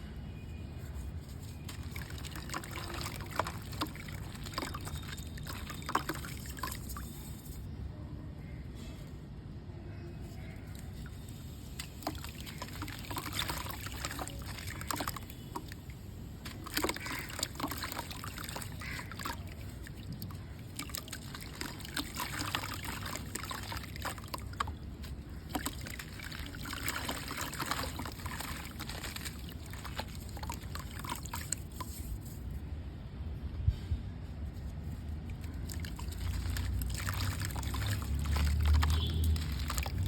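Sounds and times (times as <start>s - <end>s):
water trickling and sloshing: 0.5s - 7.7s, 10.2s - 33.0s, 34.3s - 40.0s
mud crumbling with crunchy crackles: 1.4s - 6.8s, 16.4s - 32.4s, 34.9s - 40.0s.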